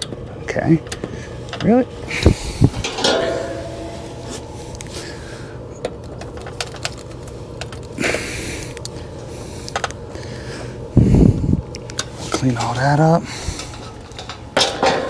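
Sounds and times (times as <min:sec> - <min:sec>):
steady low hum: 0:00.0 - 0:15.0
hand tools clicking and rattling: 0:02.8 - 0:05.0, 0:06.1 - 0:08.0.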